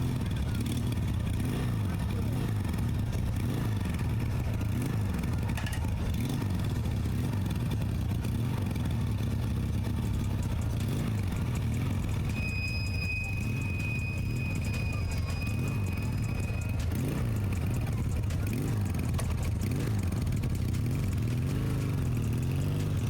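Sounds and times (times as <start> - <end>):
motorcycle engines revving: 0.0 - 23.0
high-pitched tone: 12.3 - 17.3.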